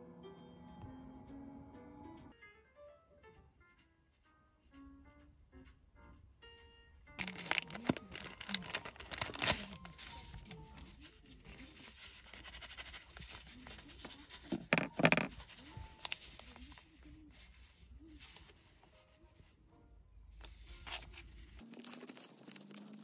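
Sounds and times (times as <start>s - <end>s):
plastic wrapper ripping and crinkling: 7.2s - 17.6s, 20.4s - 23.0s.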